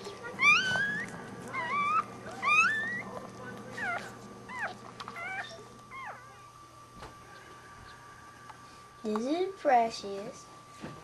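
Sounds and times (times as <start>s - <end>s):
puppies crying: 0.0s - 6.5s.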